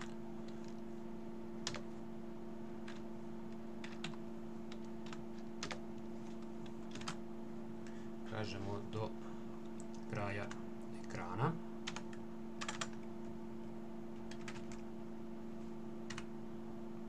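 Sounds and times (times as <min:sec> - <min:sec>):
low electrical hum: 0:00.0 - 0:17.0
computer keyboard typing: 0:01.6 - 0:01.9, 0:02.8 - 0:07.2, 0:11.8 - 0:13.1, 0:14.3 - 0:14.8, 0:16.1 - 0:16.3.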